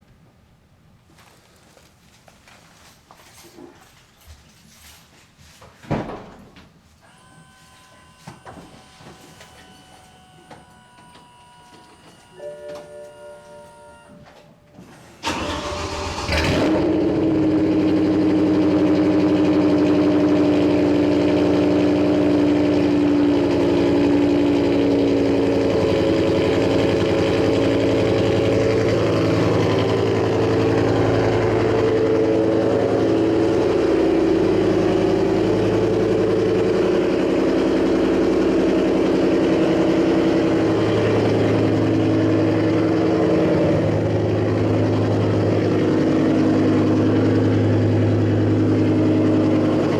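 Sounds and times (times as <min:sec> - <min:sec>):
loud car engine revving and idling: 0:15.2 - 0:49.9.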